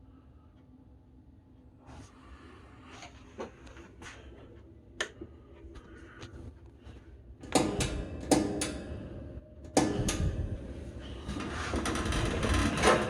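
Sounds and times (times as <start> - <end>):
metal fan knocks and clanks: 7.4 - 9.1, 9.7 - 13.0.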